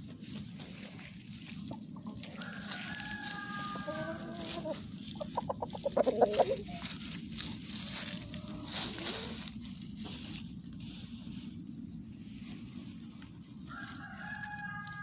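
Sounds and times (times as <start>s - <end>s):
rooster crowing: 2.3s - 4.8s, 13.6s - 15.0s
loud clucks: 3.9s - 7.0s.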